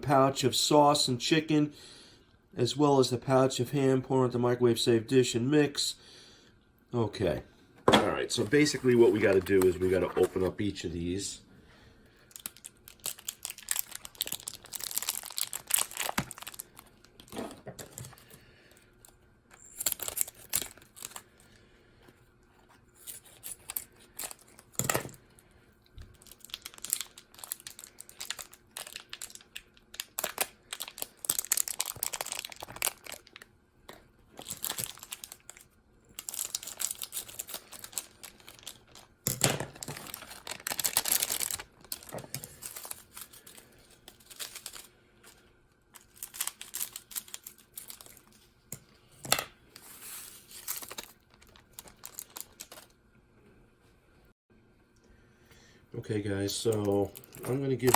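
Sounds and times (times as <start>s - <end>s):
plastic pouches tearing and crinkling: 8.3s - 10.5s, 12.3s - 18.4s, 19.0s - 21.4s, 22.9s - 25.2s, 26.0s - 48.5s, 50.0s - 53.0s, 56.6s - 57.9s.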